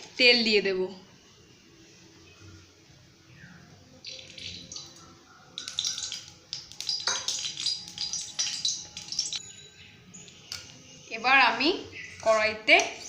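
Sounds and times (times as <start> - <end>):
hot oil crackling and spattering: 4.0 - 9.4.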